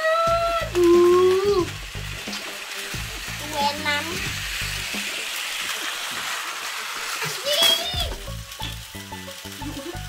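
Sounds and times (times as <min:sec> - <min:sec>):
background music: 0:00.0 - 0:10.0
toy train motors rattling: 0:00.0 - 0:10.0.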